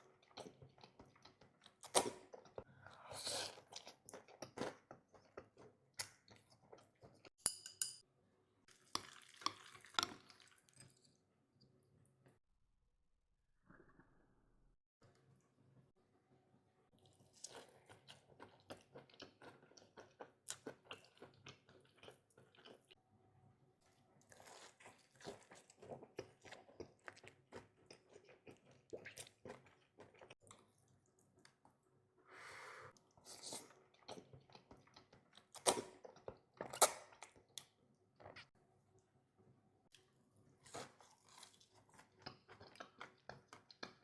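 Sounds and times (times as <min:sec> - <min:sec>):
close chewing and crunching: 0:00.0 - 0:07.4, 0:17.0 - 0:23.0, 0:23.8 - 0:31.9, 0:33.0 - 0:38.5, 0:40.0 - 0:44.0.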